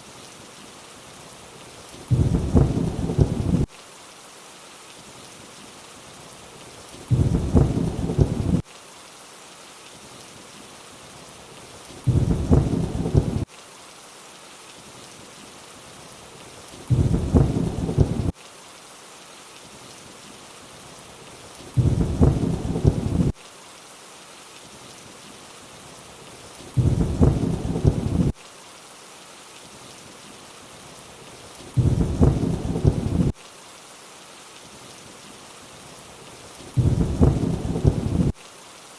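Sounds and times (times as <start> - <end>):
steady rain hiss: 0.0 - 38.9
low thunder rumble: 2.1 - 3.7, 7.1 - 8.6, 12.1 - 13.4, 16.9 - 18.3, 21.8 - 23.3, 26.8 - 28.3, 31.8 - 33.3, 36.8 - 38.3.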